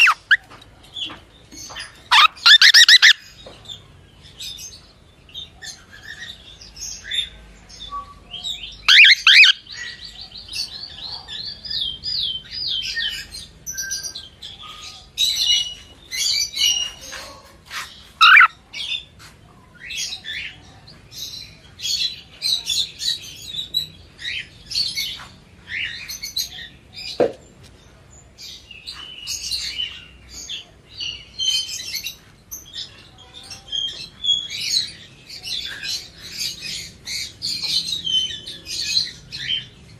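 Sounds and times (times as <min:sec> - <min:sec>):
cockatiel chirping and whistling: 0:00.0 - 0:00.4, 0:02.1 - 0:03.2, 0:08.9 - 0:09.6, 0:18.2 - 0:18.5.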